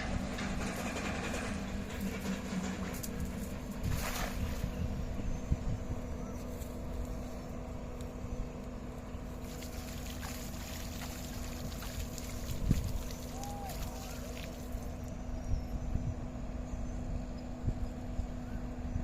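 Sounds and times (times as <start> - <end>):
wind buffeting microphone: 0.0 - 7.0, 9.5 - 19.0
small boat motor running: 0.0 - 19.0.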